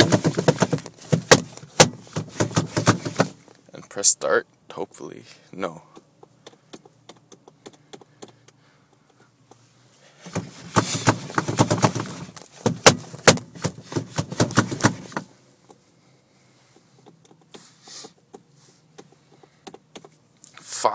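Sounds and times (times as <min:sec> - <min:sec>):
steering wheel clattering: 0:00.0 - 0:03.5, 0:10.2 - 0:15.8.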